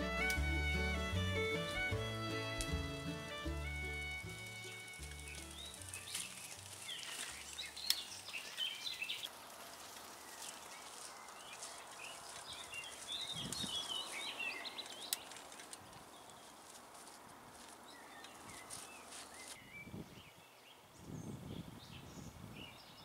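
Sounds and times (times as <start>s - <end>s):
background music: 0.0s - 6.8s
songbirds chirping: 0.0s - 23.0s
steady outdoor hiss: 0.0s - 23.0s.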